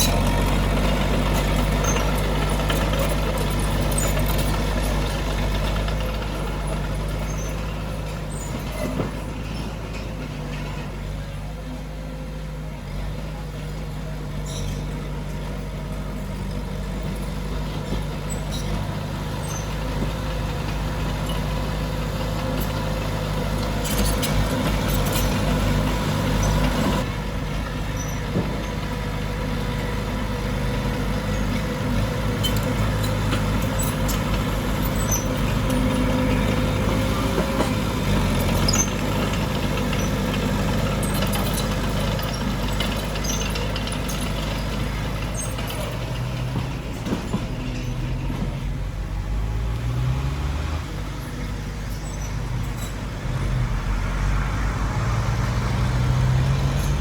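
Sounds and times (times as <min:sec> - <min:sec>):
diesel engine of heavy machinery: 0:00.0 - 0:57.0
metallic clanks: 0:23.6 - 0:29.0, 0:32.3 - 0:48.8.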